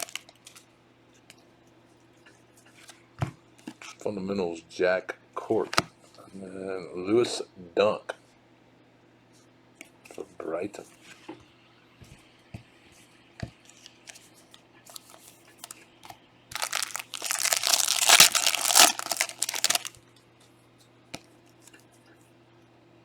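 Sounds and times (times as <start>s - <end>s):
wrapper tearing and crackling: 0.0s - 0.2s, 14.9s - 15.8s, 16.5s - 20.0s.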